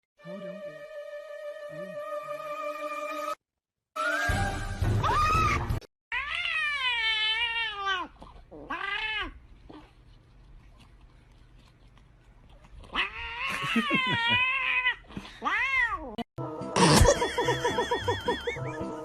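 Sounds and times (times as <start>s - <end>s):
cat meowing: 6.1s - 9.4s.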